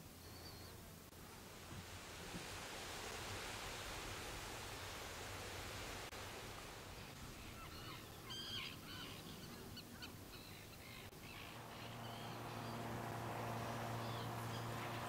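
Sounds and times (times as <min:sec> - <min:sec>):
low hum with even tones: 0:10.8 - 0:15.0.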